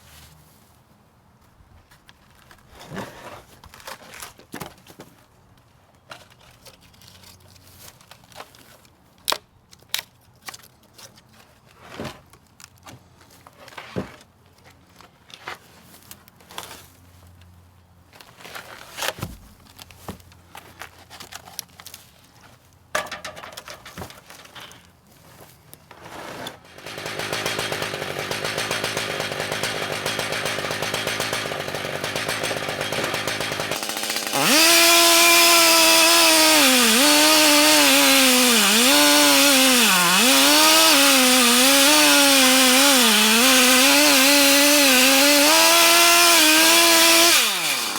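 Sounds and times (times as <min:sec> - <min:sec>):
chainsaw running: 0:26.6 - 0:47.9.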